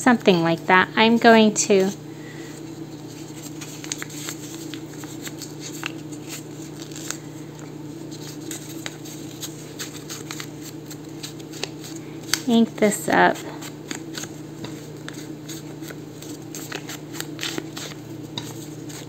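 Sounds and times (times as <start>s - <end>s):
steady low hum: 0.0s - 19.0s
paper clicks and taps: 11.2s - 12.5s, 13.6s - 19.0s.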